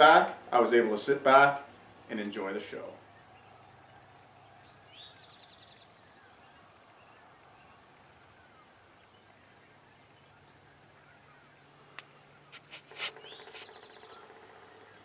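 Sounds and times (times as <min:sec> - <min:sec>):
faint bird chirps: 0:01.6 - 0:15.0
bird call with fast trill: 0:12.2 - 0:15.0.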